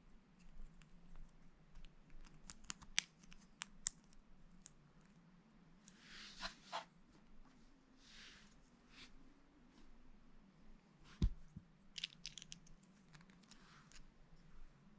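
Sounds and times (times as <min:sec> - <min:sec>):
plastic bricks clicking: 0:12.0 - 0:13.6.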